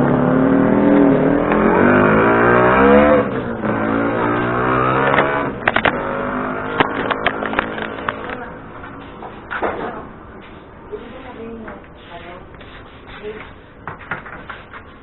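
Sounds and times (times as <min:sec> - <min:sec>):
scooter engine revving: 0:00.0 - 0:09.1
sharp clicks and knocks: 0:05.0 - 0:10.6, 0:13.8 - 0:14.9.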